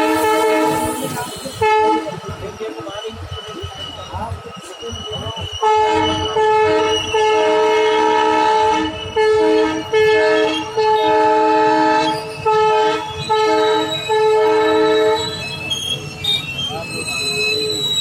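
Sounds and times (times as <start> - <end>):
multi-tone train horn blasts: 0.0 - 2.2, 5.6 - 15.6.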